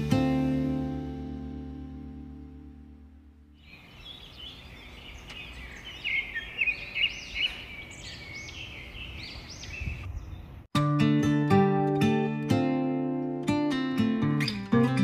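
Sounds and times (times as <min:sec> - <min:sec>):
acoustic guitar music: 0:00.0 - 0:03.6, 0:10.7 - 0:15.0
small birds chirping: 0:03.5 - 0:10.7.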